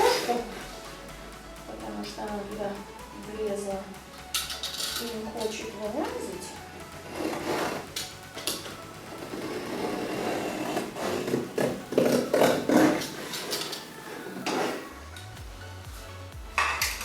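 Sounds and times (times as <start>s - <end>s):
knife scraping cardboard: 9.4s - 13.7s.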